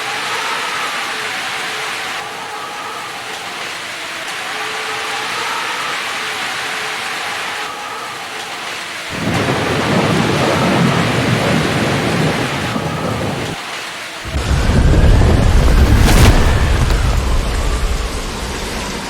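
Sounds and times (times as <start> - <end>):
heavy rain pouring: 0.0 - 19.0
deep rumble: 14.3 - 19.0.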